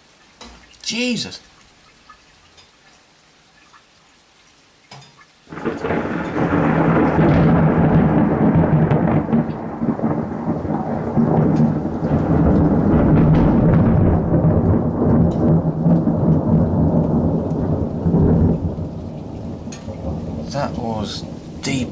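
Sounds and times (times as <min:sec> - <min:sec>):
faint raindrop ticks: 0:00.0 - 0:21.9
thunder rumbling: 0:05.5 - 0:21.9.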